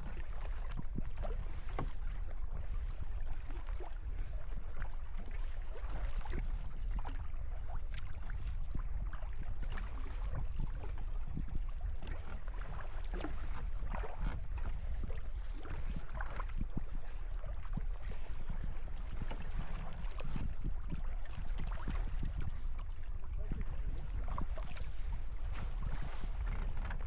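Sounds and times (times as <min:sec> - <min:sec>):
paddle splashing water: 0:00.0 - 0:27.0.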